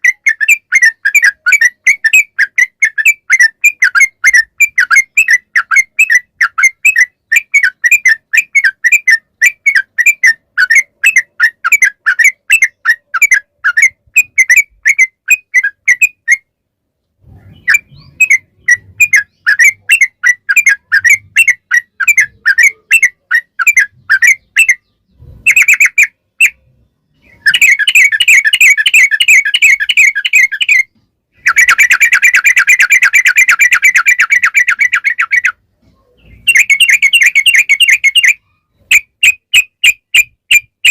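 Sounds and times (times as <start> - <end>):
bird rolling trills: 27.2 - 39.0.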